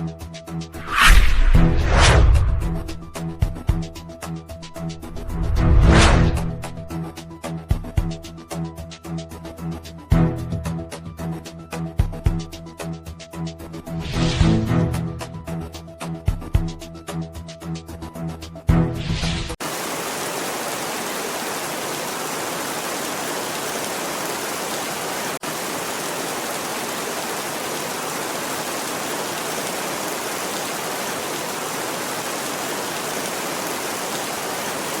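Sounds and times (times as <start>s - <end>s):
heavy rain rushing: 0.8s - 3.5s, 4.7s - 6.8s, 19.6s - 35.0s
background music: 1.5s - 19.5s.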